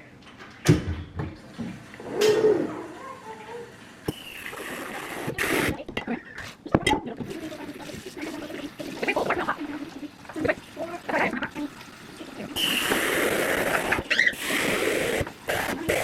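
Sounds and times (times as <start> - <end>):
tap water running: 1.2 - 16.0
dishes clattering: 5.8 - 7.6.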